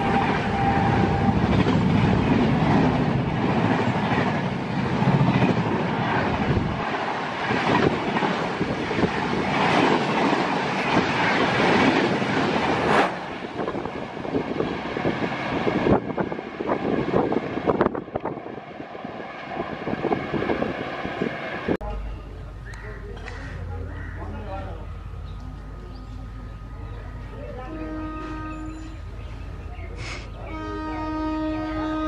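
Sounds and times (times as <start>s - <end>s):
train rushing past: 0.0s - 32.0s.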